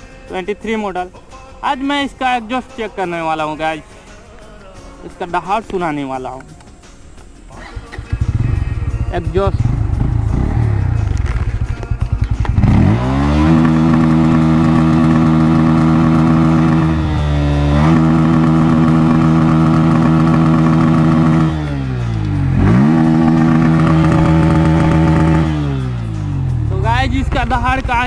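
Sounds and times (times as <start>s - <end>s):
motorcycle engine revving: 7.5s - 28.0s.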